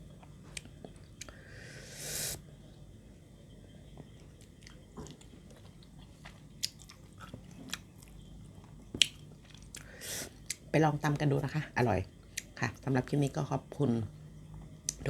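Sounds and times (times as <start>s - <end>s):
person chewing: 4.0s - 10.6s.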